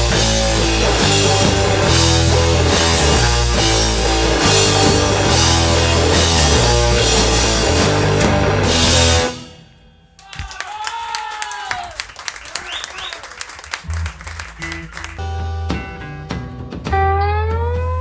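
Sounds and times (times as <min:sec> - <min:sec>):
drum kit: 0:00.0 - 0:09.6, 0:10.2 - 0:17.2
rock band playing live: 0:00.0 - 0:09.6, 0:13.7 - 0:17.9
guitar: 0:00.0 - 0:10.2, 0:13.7 - 0:18.0.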